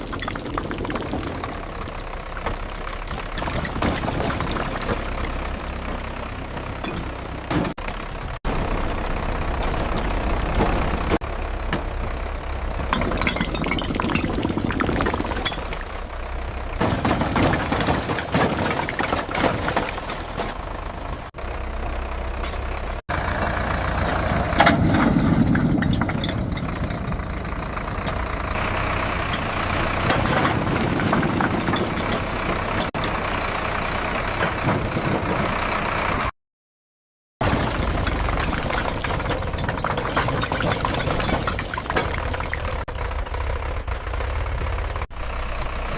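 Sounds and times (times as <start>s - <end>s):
tractor diesel engine running: 0.0s - 36.3s, 37.4s - 45.9s.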